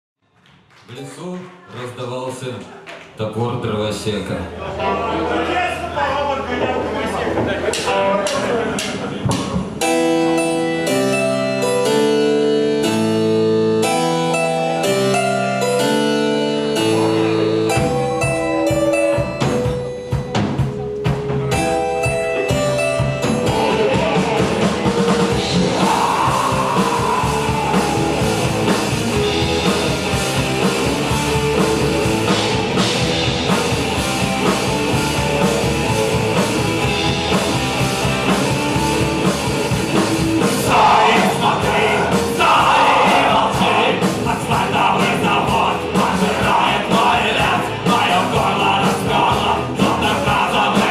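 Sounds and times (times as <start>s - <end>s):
drums: 6.4s - 50.9s
rock band with guitars: 7.4s - 50.9s
held chord notes: 9.7s - 44.8s.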